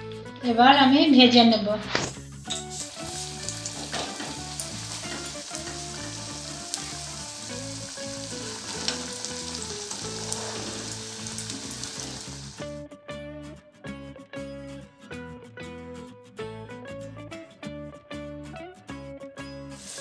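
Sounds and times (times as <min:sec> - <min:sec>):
food sizzling in hot oil: 0:02.0 - 0:12.7, 0:19.7 - 0:20.0
oil popping: 0:02.7 - 0:12.4.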